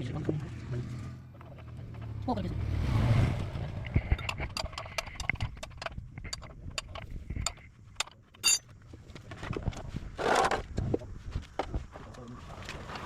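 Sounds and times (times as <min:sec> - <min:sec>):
metal hand tools clinking: 0:08.4 - 0:08.6.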